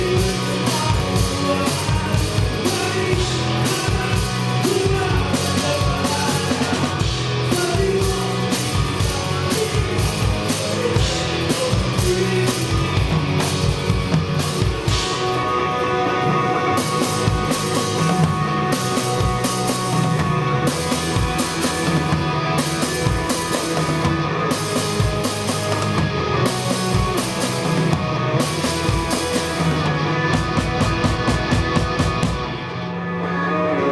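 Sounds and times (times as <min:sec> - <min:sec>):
live rock band playing: 0:00.0 - 0:33.9
drum hits: 0:16.9 - 0:32.7.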